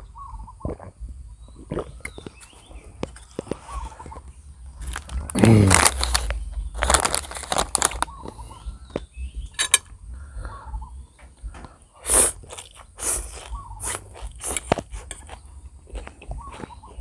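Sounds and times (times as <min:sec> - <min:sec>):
person chewing and biting food: 0:01.5 - 0:09.1, 0:12.0 - 0:17.0.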